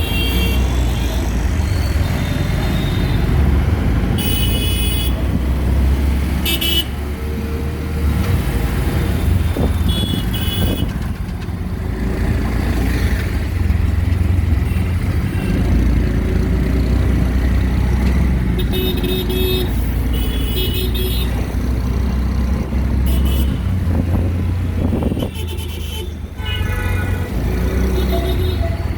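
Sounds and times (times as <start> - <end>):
engine and road rumble: 0.0 - 28.9
vehicle horns honking: 4.2 - 5.3, 6.4 - 7.0, 9.3 - 11.0, 18.6 - 21.4, 23.0 - 23.7, 24.9 - 28.9.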